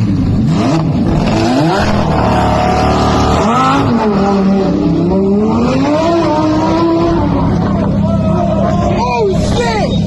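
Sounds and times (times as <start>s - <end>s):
car engine revving: 0.0s - 8.0s
road and tyre noise: 0.0s - 10.0s.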